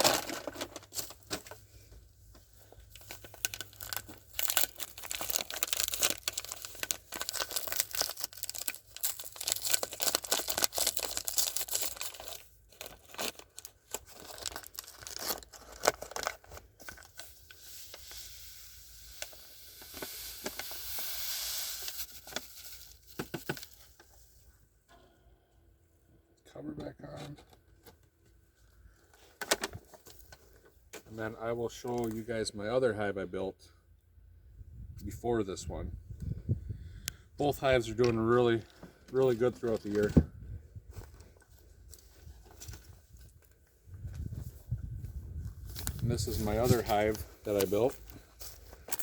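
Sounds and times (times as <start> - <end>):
sugar bag crinkling: 2.9 - 23.9
sugar pouring into wooden box: 17.5 - 23.1.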